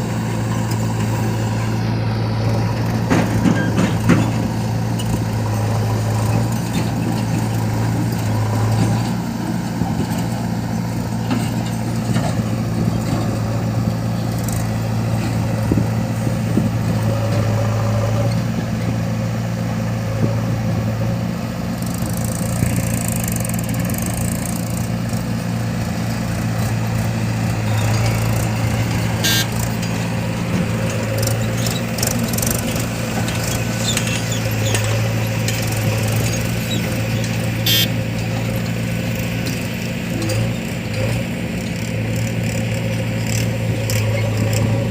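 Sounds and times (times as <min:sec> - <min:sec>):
diesel engine droning: 0:00.0 - 0:44.9
loader knocks: 0:02.6 - 0:08.0, 0:26.6 - 0:41.2.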